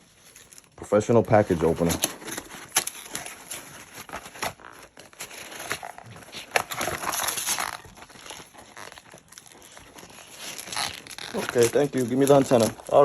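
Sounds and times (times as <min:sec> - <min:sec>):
dog tearing packaging: 0:00.0 - 0:13.0
paper and cardboard crinkling: 0:00.0 - 0:13.0.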